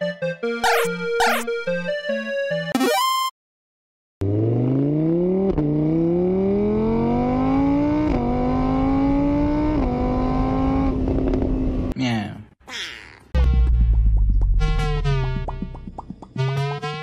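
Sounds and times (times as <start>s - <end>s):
car engine accelerating through gears: 4.2s - 12.0s.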